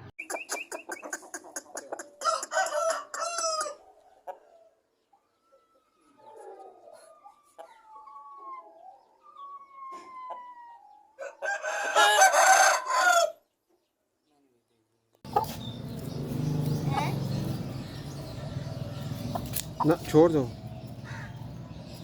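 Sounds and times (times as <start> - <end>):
rooster crowing: 11.2 - 13.4.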